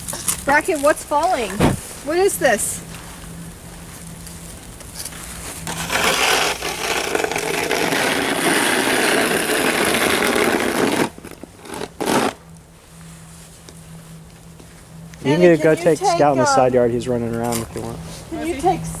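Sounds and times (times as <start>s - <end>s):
snow shovel scraping: 5.1s - 12.4s.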